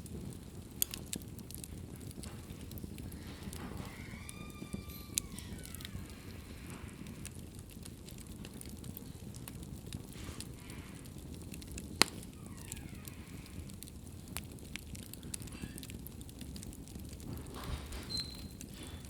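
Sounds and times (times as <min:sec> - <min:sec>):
wood fire crackling: 0:00.0 - 0:19.0
loud fire pop: 0:05.0 - 0:19.0.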